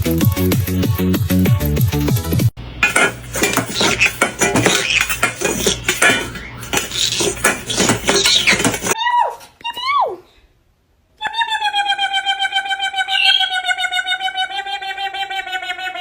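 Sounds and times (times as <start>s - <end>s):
small hard objects clattering: 2.8s - 9.0s.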